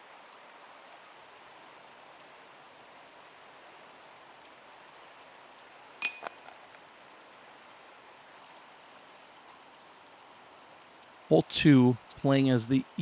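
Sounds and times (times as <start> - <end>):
chain clinks: 6.0 - 6.4
disc striking metal basket: 6.0 - 6.5.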